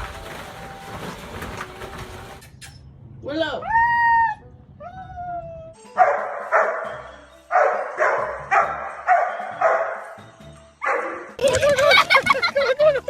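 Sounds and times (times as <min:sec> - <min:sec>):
dog barking: 0:06.0 - 0:10.2, 0:10.8 - 0:11.4.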